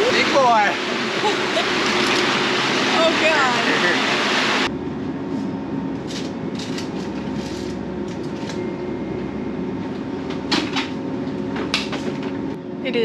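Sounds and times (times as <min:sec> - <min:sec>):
rush of wind and water: 0:00.0 - 0:04.7
yacht machinery drone: 0:00.0 - 0:13.0.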